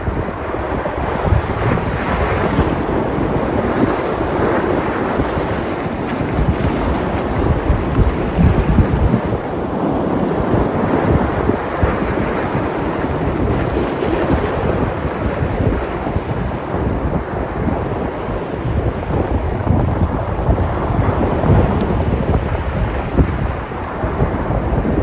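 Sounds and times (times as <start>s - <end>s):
waves breaking and washing: 0.0s - 25.0s
wind buffeting microphone: 0.0s - 25.0s.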